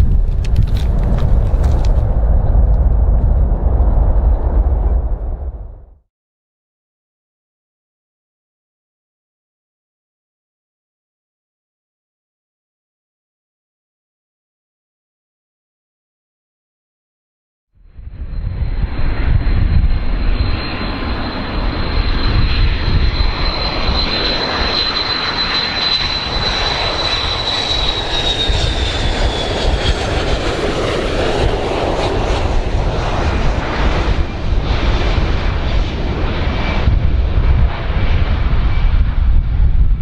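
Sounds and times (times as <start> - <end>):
airplane engines rumbling and whining: 0.0 - 6.0, 17.8 - 40.0.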